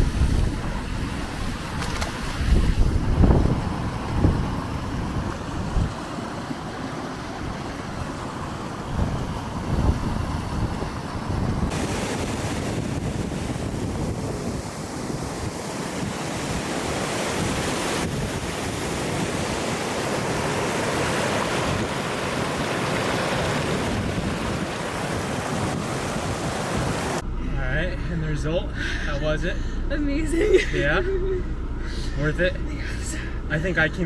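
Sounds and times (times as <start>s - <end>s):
wind on microphone: 0.0s - 6.1s, 7.4s - 27.2s
small waterfall splashing: 3.3s - 27.2s.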